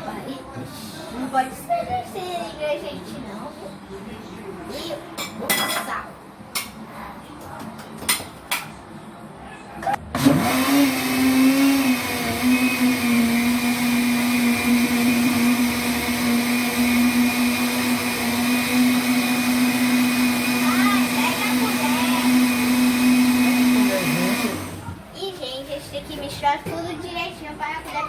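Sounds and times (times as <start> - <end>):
blender motor running: 10.2 - 24.8.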